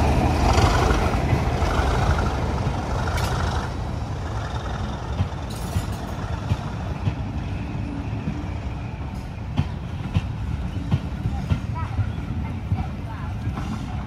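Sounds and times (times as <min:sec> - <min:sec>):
wheels clicking over rail joints: 0:00.0 - 0:07.3
train wheels rumbling on rail: 0:00.0 - 0:14.0.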